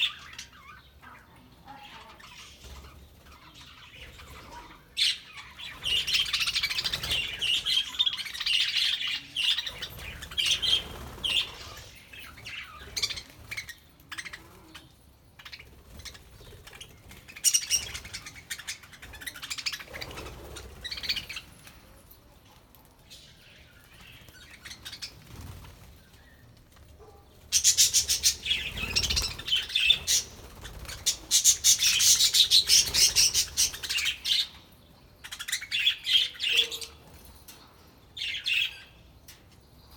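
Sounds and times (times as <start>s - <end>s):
budgerigars chattering and chirping: 0.0s - 21.5s, 27.0s - 37.0s.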